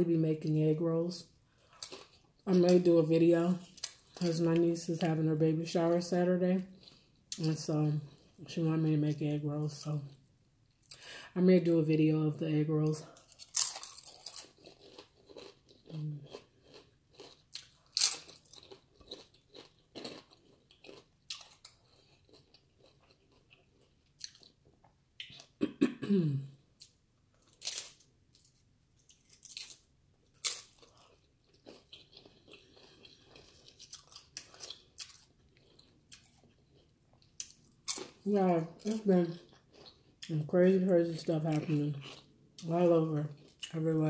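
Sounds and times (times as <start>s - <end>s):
crunching chips chewing: 1.6s - 2.4s, 13.2s - 24.6s, 26.8s - 38.2s, 38.8s - 40.3s, 41.5s - 42.7s.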